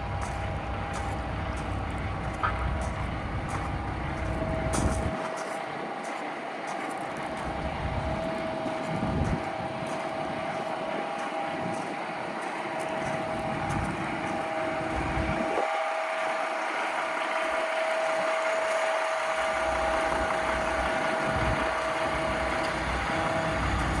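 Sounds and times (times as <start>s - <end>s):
diesel truck engine idling: 0.0s - 24.0s
steady whining tone: 0.0s - 24.0s.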